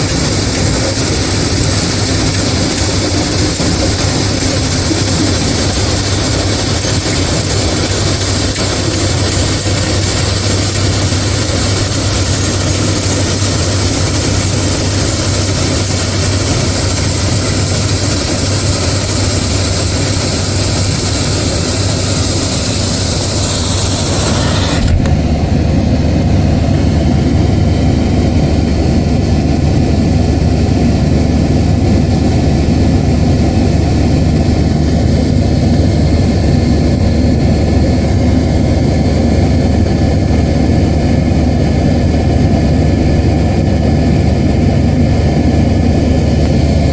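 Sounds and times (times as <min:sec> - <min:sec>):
machinery hiss: 0:00.0 - 0:26.3
heavy machinery engine drone: 0:00.0 - 0:46.9.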